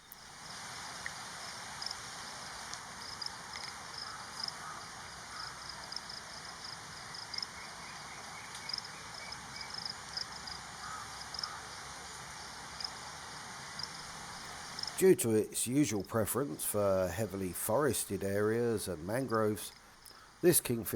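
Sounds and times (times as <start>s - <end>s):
steady hiss: 0.0s - 5.4s, 9.7s - 20.9s.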